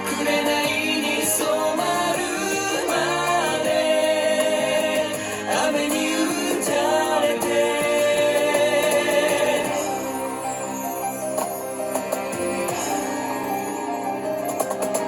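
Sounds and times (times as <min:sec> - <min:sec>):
male vocal group singing: 0:00.0 - 0:10.7
acoustic instrumental accompaniment: 0:00.0 - 0:15.0.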